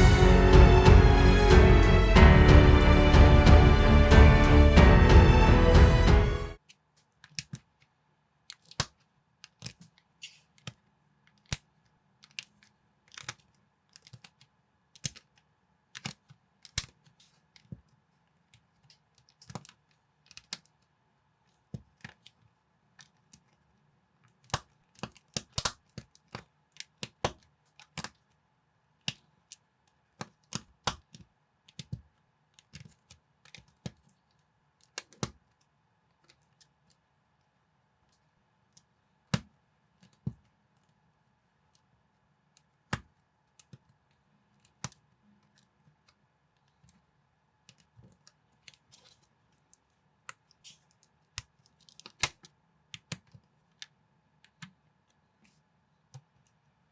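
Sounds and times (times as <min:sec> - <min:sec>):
plastic bricks clicking together: 0:08.5 - 0:17.0.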